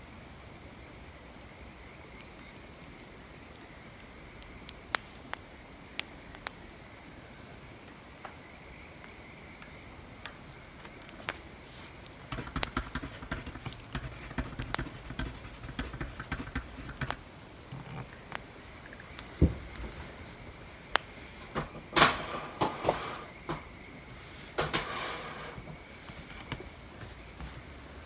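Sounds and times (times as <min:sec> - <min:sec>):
wood fire crackling: 0:09.6 - 0:28.0
writing on paper: 0:11.8 - 0:18.2
soft thump: 0:19.4 - 0:19.9.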